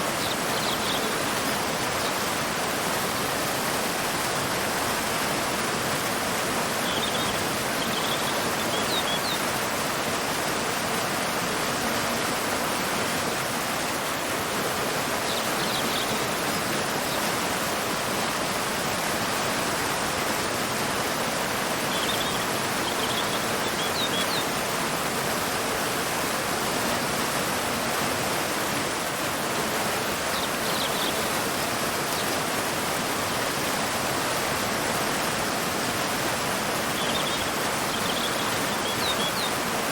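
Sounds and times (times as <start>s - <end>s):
waterfall pouring into river: 0.0s - 39.9s
faint high bird chirps: 37.0s - 39.6s.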